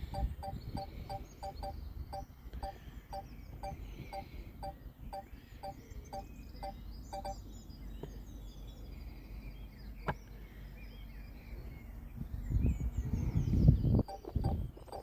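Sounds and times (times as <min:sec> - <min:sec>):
two-note beeps: 0:00.0 - 0:02.8
small birds chirping: 0:00.0 - 0:15.0
wind rumble on microphone: 0:11.6 - 0:15.0.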